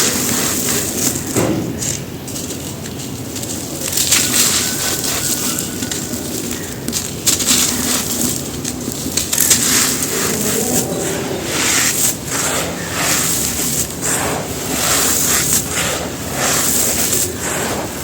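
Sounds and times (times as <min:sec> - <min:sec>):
dry dirt crumbling and crunching: 0:00.0 - 0:18.0.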